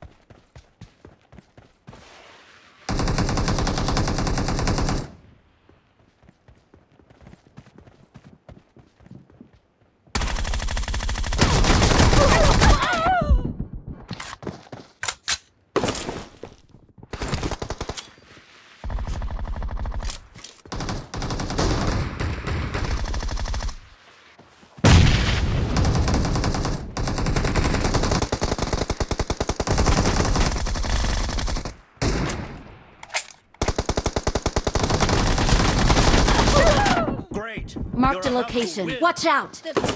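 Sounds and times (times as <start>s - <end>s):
video game automatic gunfire: 2.9s - 5.1s, 10.2s - 12.7s, 20.7s - 23.8s, 25.7s - 32.1s, 33.6s - 36.8s.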